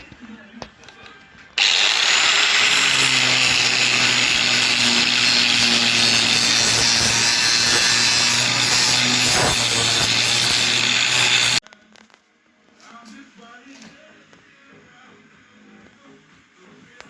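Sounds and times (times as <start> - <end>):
power tool running under load: 1.6 - 11.6.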